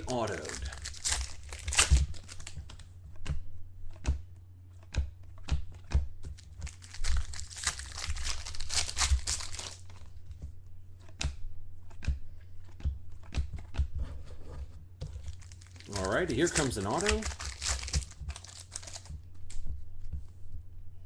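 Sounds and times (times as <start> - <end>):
cards clicking and tapping: 0.0 - 14.0, 15.0 - 20.3
steady low hum: 0.0 - 21.0
cards sliding and rustling: 14.1 - 19.1.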